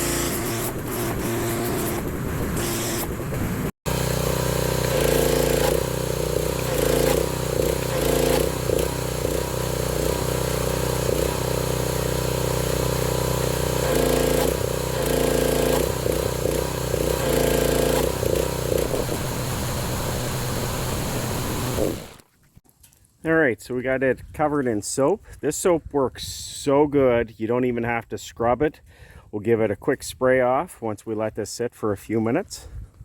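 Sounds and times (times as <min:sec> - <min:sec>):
pressure washer running: 0:00.0 - 0:22.2
hiss of spray: 0:18.9 - 0:22.2.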